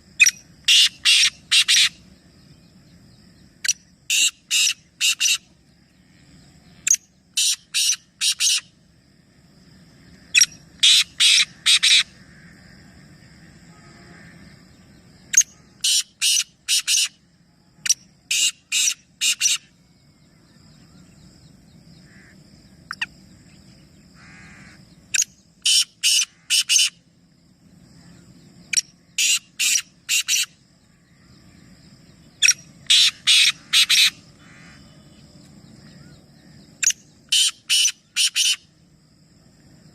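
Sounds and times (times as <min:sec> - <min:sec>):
harsh bird calls: 0:00.2 - 0:02.6, 0:03.4 - 0:05.6, 0:10.1 - 0:12.7, 0:14.0 - 0:17.2, 0:17.8 - 0:19.7, 0:20.5 - 0:27.1, 0:28.0 - 0:38.7
faint high-pitched tone: 0:13.4 - 0:15.8, 0:34.7 - 0:36.6.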